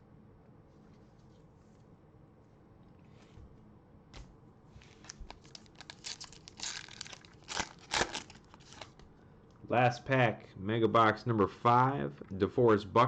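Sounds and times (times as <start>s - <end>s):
wrapper tearing and crinkling: 4.8s - 9.0s.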